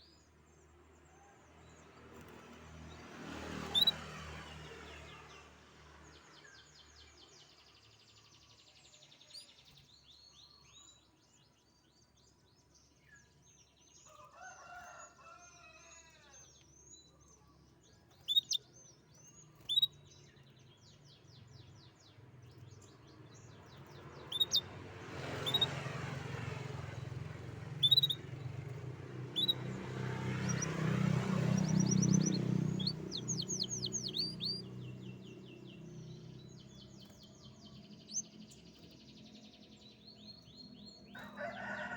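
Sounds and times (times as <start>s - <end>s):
canary singing: 3.6s - 4.0s, 18.1s - 18.7s, 19.6s - 20.1s, 23.8s - 38.5s.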